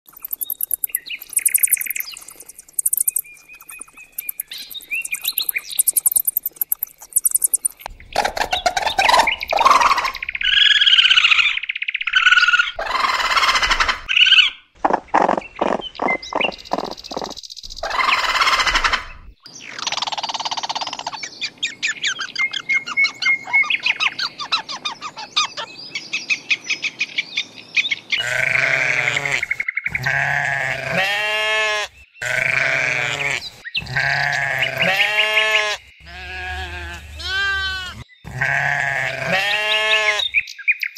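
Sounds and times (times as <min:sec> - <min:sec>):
bird chirps and tweets: 0:00.0 - 0:12.8, 0:14.1 - 0:18.2, 0:18.8 - 0:28.5, 0:33.4 - 0:40.9
animal squeals and trills: 0:08.4 - 0:11.3, 0:12.2 - 0:14.1, 0:17.8 - 0:19.2, 0:28.2 - 0:40.4
deep animal bleat: 0:28.2 - 0:40.2.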